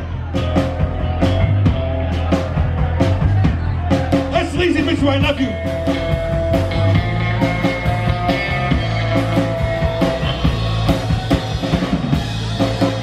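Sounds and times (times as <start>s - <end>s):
live rock band playing: 0.0s - 13.0s
electric guitar sustained notes: 5.5s - 13.0s.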